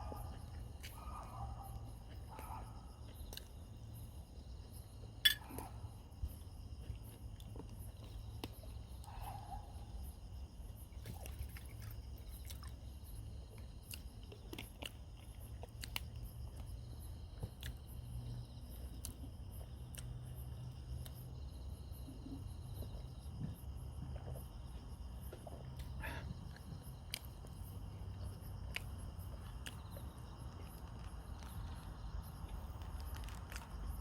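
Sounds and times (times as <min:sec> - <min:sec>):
insects chirring: 0:00.0 - 0:34.0
person chewing: 0:11.0 - 0:12.8, 0:13.5 - 0:16.7, 0:28.2 - 0:34.0
sharp clicks and crunches: 0:28.7 - 0:34.0.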